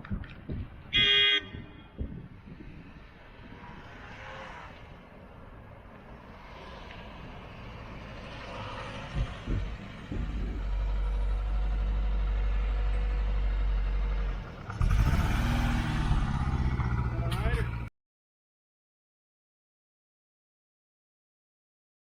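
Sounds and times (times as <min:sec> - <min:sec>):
car engine deep rumble: 0:07.2 - 0:17.9.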